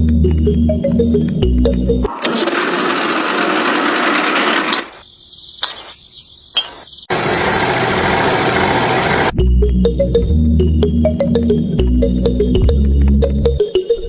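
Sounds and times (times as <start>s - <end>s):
small motor whirring: 2.1s - 5.0s.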